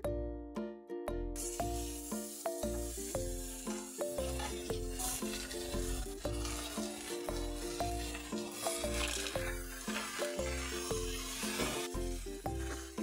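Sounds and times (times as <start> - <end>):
music with plucked melody and bass: 0.0 - 13.0
onions and tomatoes sizzling in pan: 1.4 - 13.0
wooden spatula stirring: 4.2 - 13.0.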